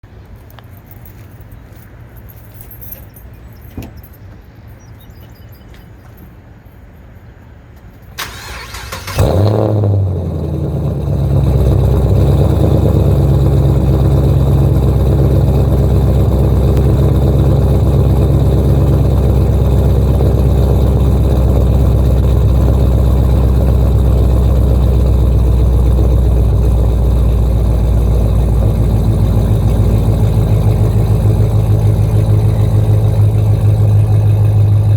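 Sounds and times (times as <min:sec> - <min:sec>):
engine cranking: 0:08.2 - 0:10.0, 0:11.3 - 0:34.9
car engine revving and idling: 0:08.2 - 0:34.9.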